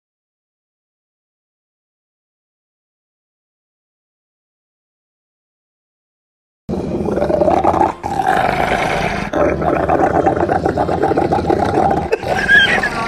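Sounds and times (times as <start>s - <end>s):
dog growling: 6.7s - 13.0s.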